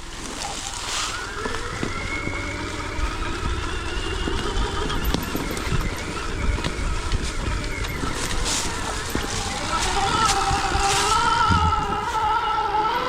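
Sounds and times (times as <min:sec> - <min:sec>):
electric motorbike motor whining: 0:00.0 - 0:13.0.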